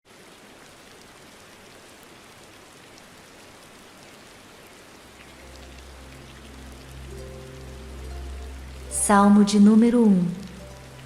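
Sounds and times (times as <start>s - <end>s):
steady rain: 0.0s - 11.0s
low sustained music tones: 5.1s - 11.0s.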